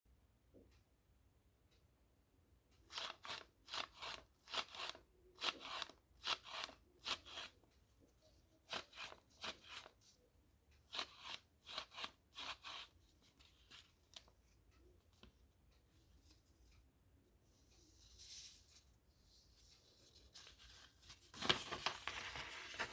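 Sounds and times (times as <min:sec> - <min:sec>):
paper crinkling by hand: 0:19.8 - 0:22.9.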